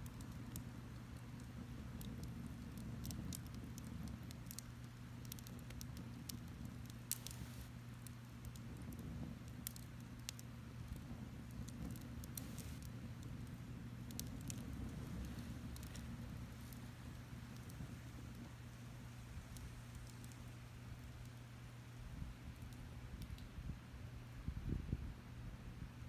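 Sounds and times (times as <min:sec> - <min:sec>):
wood fire crackling: 0:00.0 - 0:23.5
faint low hum: 0:07.1 - 0:07.7, 0:12.3 - 0:25.0.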